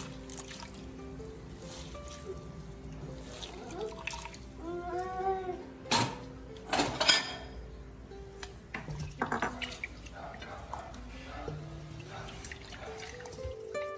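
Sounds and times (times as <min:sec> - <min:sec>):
wet squishes: 0:00.0 - 0:00.9, 0:12.0 - 0:13.7
background music: 0:00.0 - 0:13.9.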